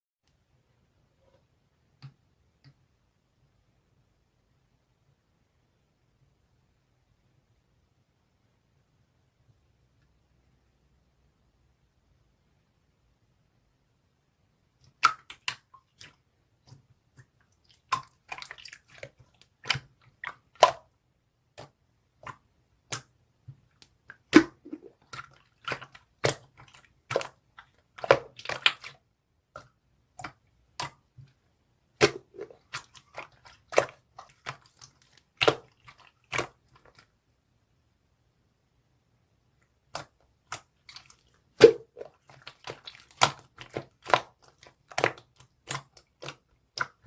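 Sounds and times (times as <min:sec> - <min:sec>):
slime squishing by hand: 0:14.6 - 0:37.3, 0:39.6 - 0:47.0
wet clicks and sticky pops: 0:14.9 - 0:20.9, 0:39.8 - 0:47.0.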